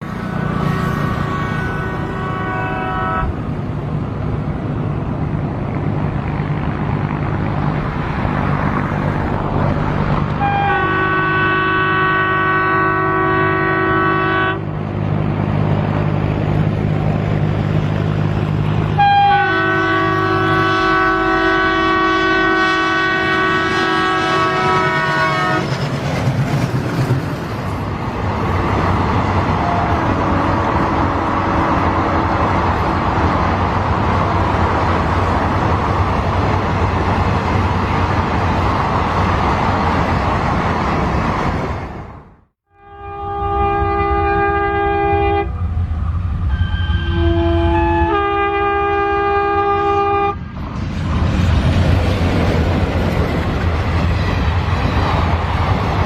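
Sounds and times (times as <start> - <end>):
train wagons rumbling and clattering: 0.0 - 42.4, 43.7 - 56.0
low hum of locomotive: 0.0 - 56.0
locomotive horn blast: 0.2 - 3.5, 10.3 - 14.8, 18.9 - 25.7, 29.6 - 32.6, 42.6 - 45.6, 46.5 - 50.4.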